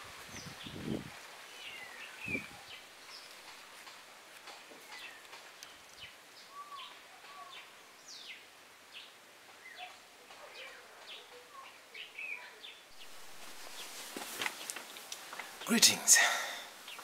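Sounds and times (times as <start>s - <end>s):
faint birds chirping: 0.0s - 17.0s
steady hiss: 12.9s - 17.0s.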